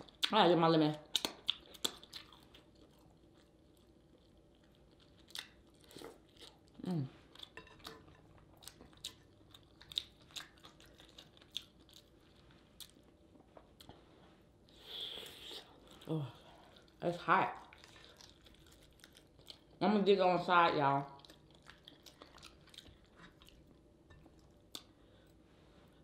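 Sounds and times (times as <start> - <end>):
chewing and mouth clicks: 1.1 - 6.7, 7.4 - 14.0, 17.6 - 19.8, 21.2 - 25.0.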